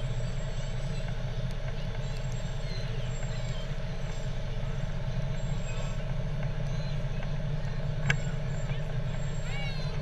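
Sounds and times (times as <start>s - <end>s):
heavy truck engines droning: 0.0s - 10.0s.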